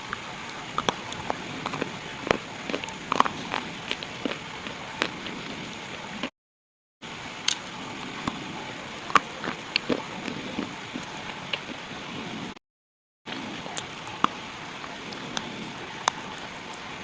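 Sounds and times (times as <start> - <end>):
steady hiss: 7.0 - 12.6.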